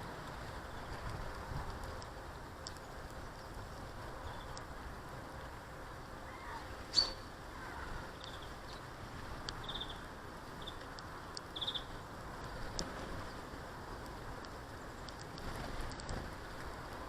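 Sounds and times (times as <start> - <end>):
steady outdoor hiss: 0.0 - 17.0
faint ticks: 0.1 - 4.8, 9.4 - 10.0, 10.6 - 17.0
small birds chirping: 2.0 - 4.8, 6.2 - 12.0.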